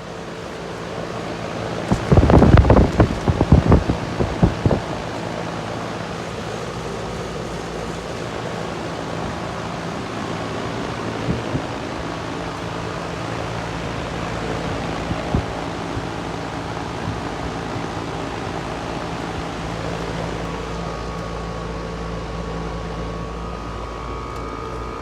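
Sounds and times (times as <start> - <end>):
compressor hum: 0.0 - 25.0
outdoor fan whoosh: 0.0 - 25.0
low thumps: 1.9 - 5.2.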